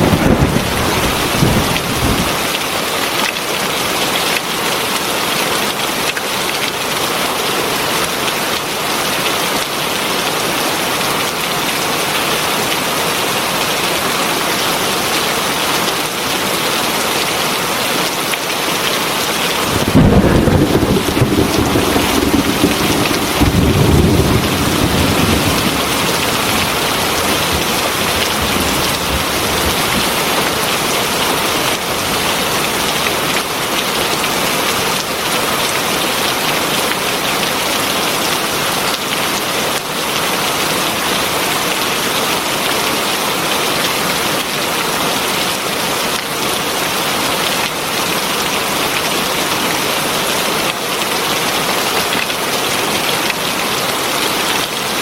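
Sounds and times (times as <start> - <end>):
low roll of thunder: 0.0 - 2.5, 19.5 - 30.5
heavy rain falling: 0.0 - 55.0.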